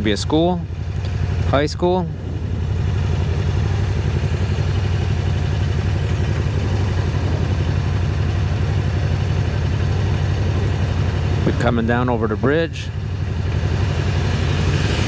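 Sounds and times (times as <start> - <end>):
motorcycle engine cruising: 0.0 - 15.0
wind rush: 1.8 - 5.3, 6.1 - 8.0, 13.7 - 15.0.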